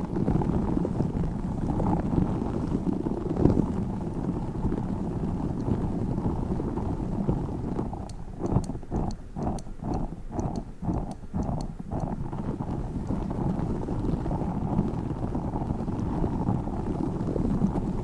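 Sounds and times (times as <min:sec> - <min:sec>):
rubbing rumble against microphone: 0:00.0 - 0:18.0
rhythmic pulses with sharp clicks: 0:08.0 - 0:13.2.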